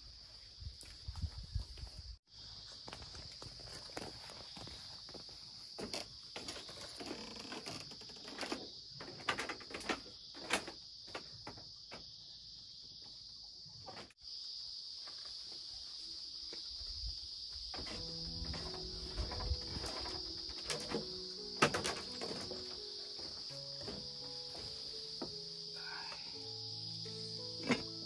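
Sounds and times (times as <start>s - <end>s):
high-pitched insect chirring: 15.7s - 28.0s.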